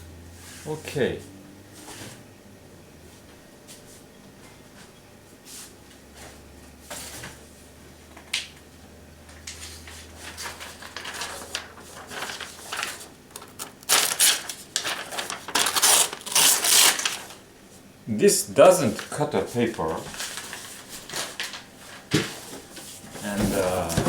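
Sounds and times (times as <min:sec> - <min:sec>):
paper rustling and crumpling: 0:09.4 - 0:17.4, 0:18.8 - 0:24.0.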